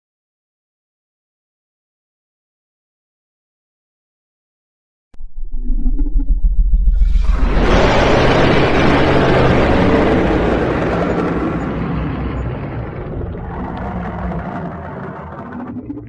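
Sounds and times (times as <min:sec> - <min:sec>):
deep rumbling dragon roar: 0:06.9 - 0:16.0.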